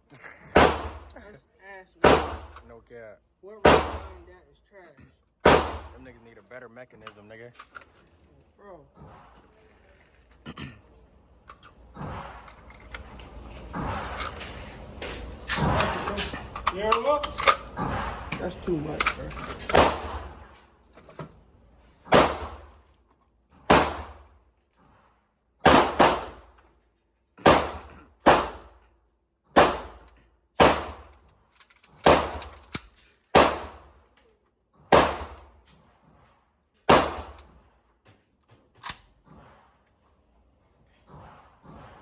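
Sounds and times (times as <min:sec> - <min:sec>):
echoing gunshots: 0:00.5 - 0:01.2, 0:02.0 - 0:02.6, 0:03.6 - 0:04.3, 0:05.4 - 0:06.0, 0:19.7 - 0:20.5, 0:22.0 - 0:22.8, 0:23.7 - 0:24.3, 0:25.6 - 0:26.5, 0:27.4 - 0:28.7, 0:29.6 - 0:31.1, 0:32.0 - 0:32.4, 0:33.4 - 0:33.9, 0:34.9 - 0:35.5, 0:36.9 - 0:37.4.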